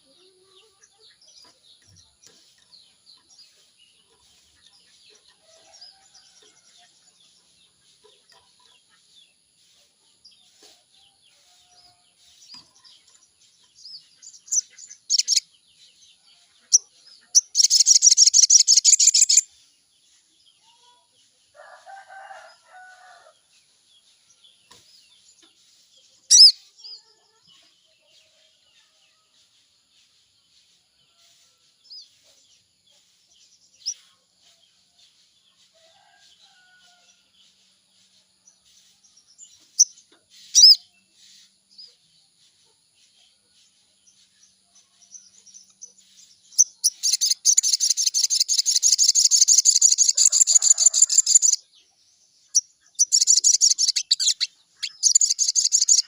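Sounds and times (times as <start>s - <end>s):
bird chirping: 0.0s - 21.0s, 22.4s - 30.8s, 31.8s - 56.0s.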